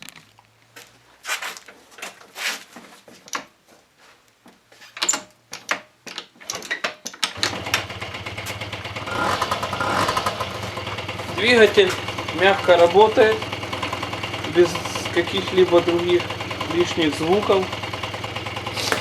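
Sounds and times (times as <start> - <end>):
scooter engine cranking: 7.4 - 19.0
scooter engine idling: 7.4 - 19.0.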